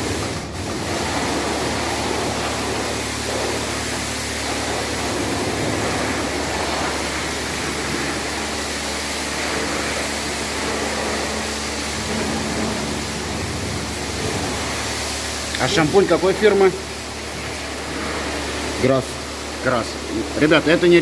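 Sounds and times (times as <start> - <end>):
pressure washer water spraying: 0.0 - 21.0
low steady hum: 4.5 - 18.2.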